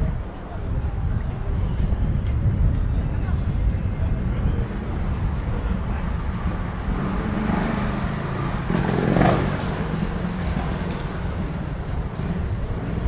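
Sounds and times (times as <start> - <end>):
low rumble of traffic: 0.0 - 13.0
vehicle passing by: 6.4 - 11.4.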